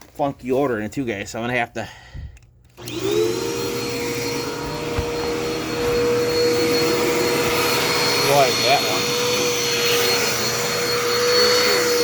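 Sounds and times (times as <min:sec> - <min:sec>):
vacuum cleaner motor running: 0:02.8 - 0:12.0.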